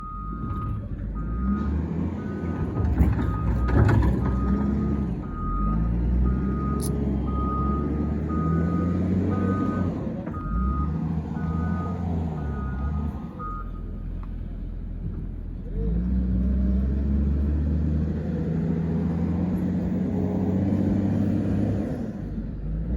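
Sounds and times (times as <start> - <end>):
construction machine engine running: 0.0 - 16.1
backup alarm beeping: 4.4 - 13.8.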